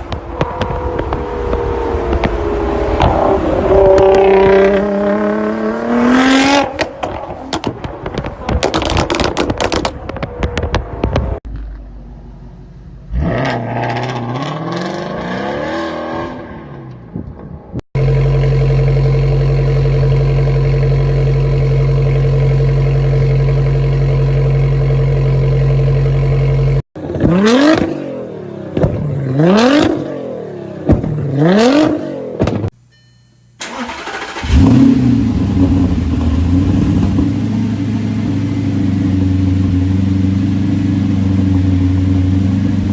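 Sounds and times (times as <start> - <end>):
car engine revving: 0.0 - 11.4, 13.0 - 16.9, 18.0 - 32.6, 33.6 - 42.9
exhaust pops: 6.6 - 11.9.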